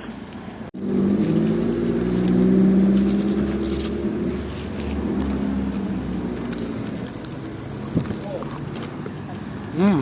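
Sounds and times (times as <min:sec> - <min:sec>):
popping candy crackling: 0:06.5 - 0:08.6.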